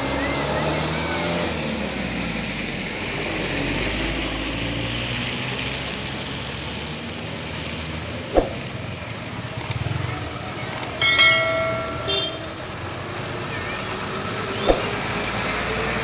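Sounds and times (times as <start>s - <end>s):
truck diesel engine under load: 0.0s - 16.0s
sharp knock: 14.6s - 15.0s.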